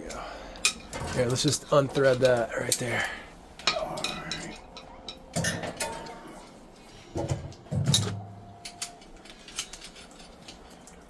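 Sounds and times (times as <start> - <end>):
metal tools and fittings clinking: 7.9 - 11.0.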